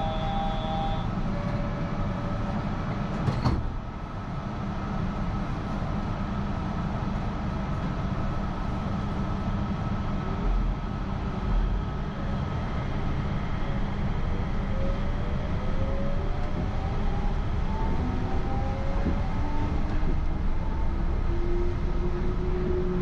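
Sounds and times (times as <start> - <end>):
rising train whine: 0.0 - 23.0
train running rumble: 0.0 - 23.0.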